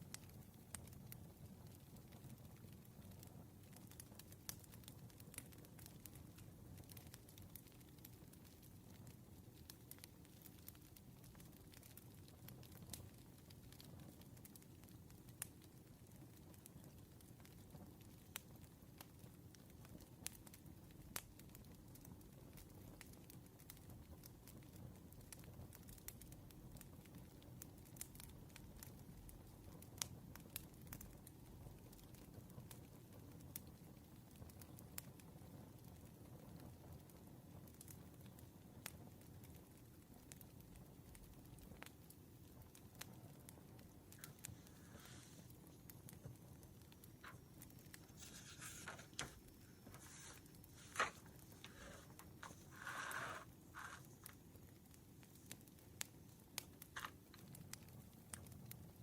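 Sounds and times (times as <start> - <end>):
campfire crackling and popping: 0.0 - 59.0
light ticks of stationery: 44.1 - 46.3, 46.9 - 58.8
paper rustling: 48.0 - 54.4.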